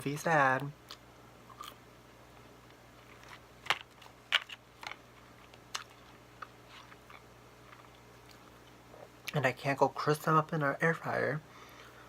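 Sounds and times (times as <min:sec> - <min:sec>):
person chewing food: 0:00.8 - 0:01.8, 0:03.0 - 0:09.3.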